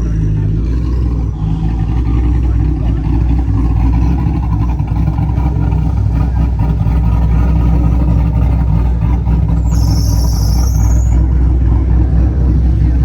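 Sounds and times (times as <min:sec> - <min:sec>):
car engines running: 0:00.0 - 0:13.0
short high squeal: 0:09.6 - 0:11.3.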